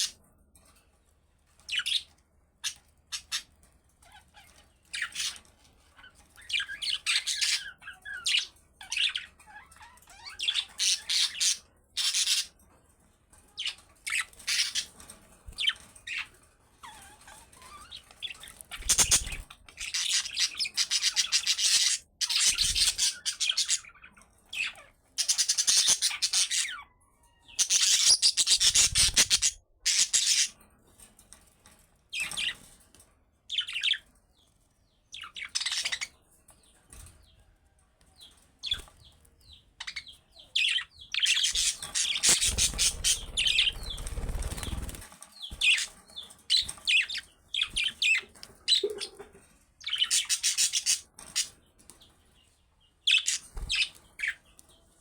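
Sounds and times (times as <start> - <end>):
budgerigars chattering: 39.8 - 45.0, 49.9 - 51.5.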